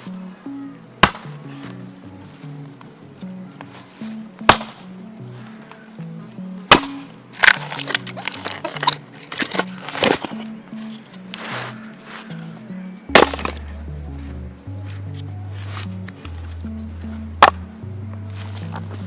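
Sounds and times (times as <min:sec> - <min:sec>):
soft background music: 0:00.0 - 0:19.0
wood cracking and splintering: 0:06.7 - 0:10.5.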